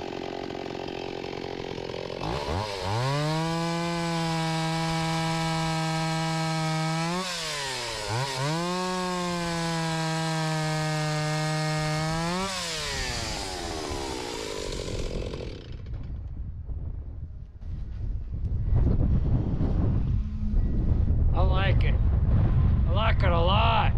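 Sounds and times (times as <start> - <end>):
chainsaw running at full throttle: 0.0 - 16.1.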